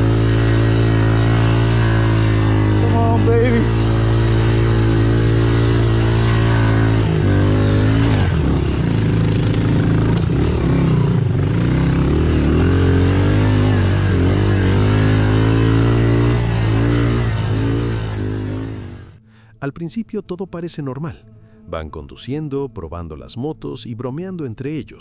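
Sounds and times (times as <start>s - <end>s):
motorcycle engine revving: 0.0s - 19.2s.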